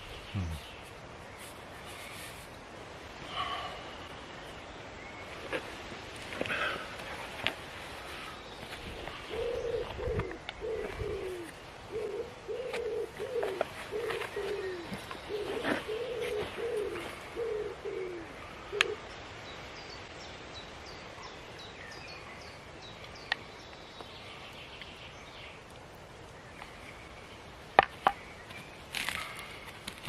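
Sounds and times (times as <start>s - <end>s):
small birds chirping: 0.0s - 30.0s
dove cooing: 8.9s - 19.0s.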